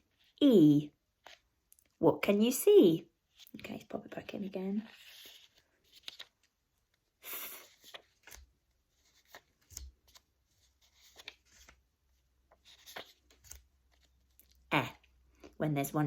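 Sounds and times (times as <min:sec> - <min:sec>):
cards shuffling: 0:04.8 - 0:11.8, 0:12.5 - 0:14.6.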